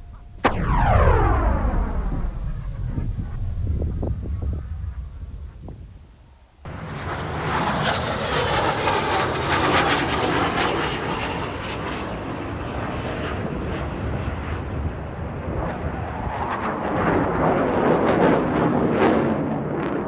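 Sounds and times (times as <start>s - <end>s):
aircraft engines droning: 0.0s - 15.2s.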